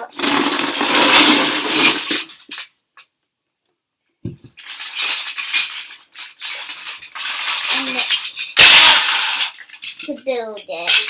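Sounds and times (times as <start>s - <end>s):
toy pieces rustling and clattering: 0.0s - 2.7s, 4.6s - 11.0s
low thump: 4.2s - 4.6s.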